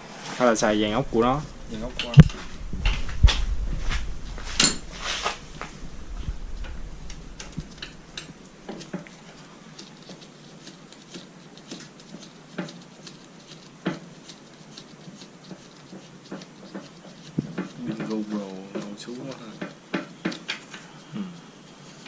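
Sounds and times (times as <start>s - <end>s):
metal hand tools clicking and knocking: 15.9s - 20.7s.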